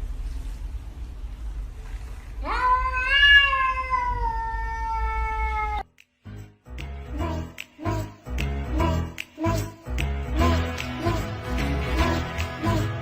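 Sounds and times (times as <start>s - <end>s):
cat meowing: 2.4s - 5.9s
music with a beat: 6.0s - 13.0s.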